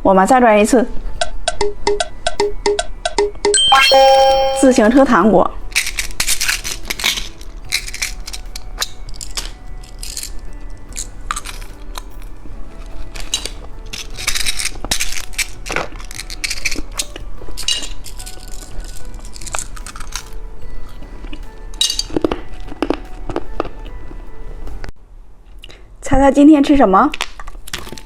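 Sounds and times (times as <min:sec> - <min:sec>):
candy packaging crinkling: 0:05.8 - 0:23.8.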